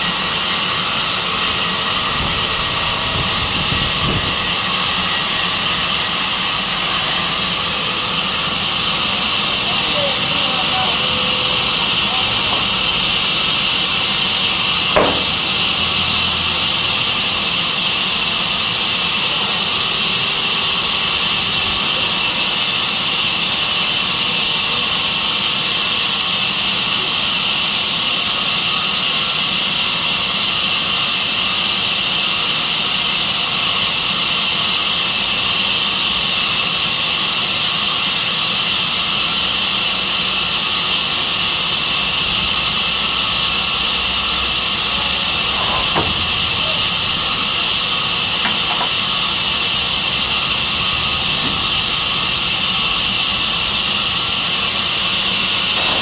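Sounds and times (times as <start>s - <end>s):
sawmill saw running: 0.0s - 56.0s.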